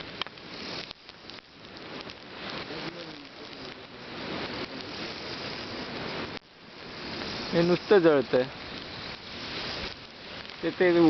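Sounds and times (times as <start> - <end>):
bonfire crackling and hissing: 0.0 - 11.0.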